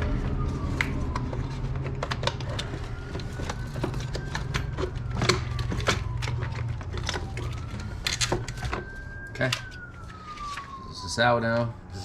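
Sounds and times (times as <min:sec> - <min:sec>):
distant siren wailing: 0:00.0 - 0:12.0
hand tools clicking and knocking: 0:01.1 - 0:09.8.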